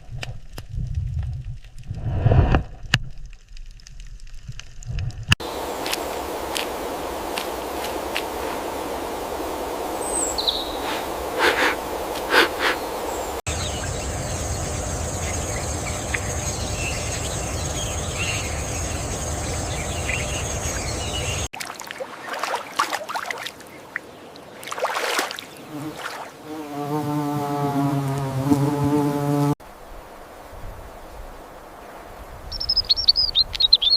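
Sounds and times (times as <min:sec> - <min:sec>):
low rumble: 0:00.8 - 0:03.4, 0:12.8 - 0:21.5
bird chirps: 0:10.0 - 0:21.5, 0:32.5 - 0:33.9.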